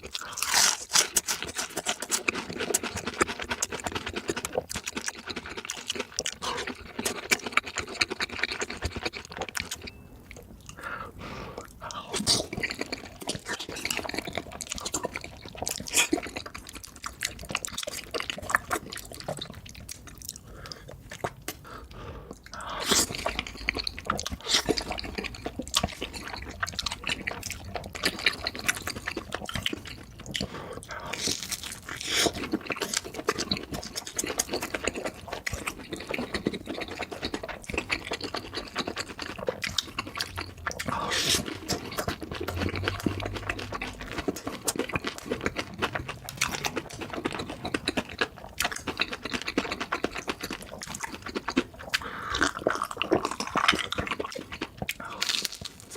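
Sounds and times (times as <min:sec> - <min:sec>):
chewing and mouth smacks: 0:00.0 - 0:10.9, 0:11.6 - 0:55.9.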